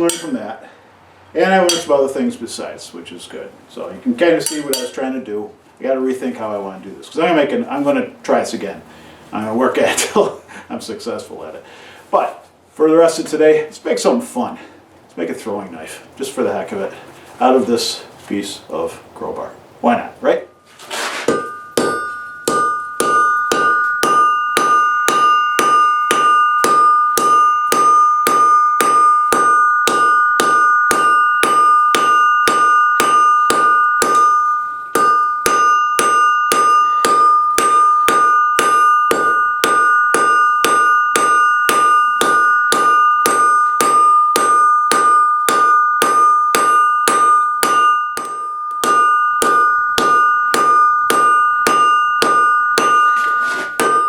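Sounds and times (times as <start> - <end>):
hammer striking steel on anvil: 0.0 - 0.4, 1.7 - 2.0, 4.4 - 5.0, 21.1 - 54.0
anvil ringing: 0.0 - 0.5, 1.6 - 2.0, 4.4 - 5.0, 20.5 - 54.0.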